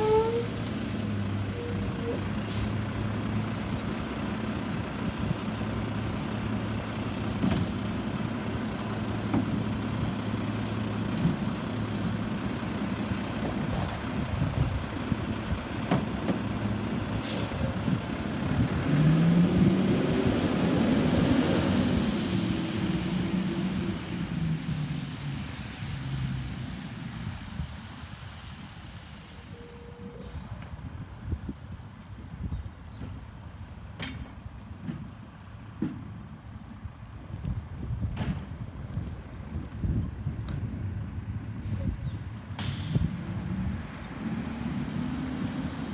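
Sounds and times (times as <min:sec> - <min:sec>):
garbage truck engine running: 0:00.5 - 0:24.7
air brake hisses: 0:17.2 - 0:17.7, 0:42.6 - 0:43.1.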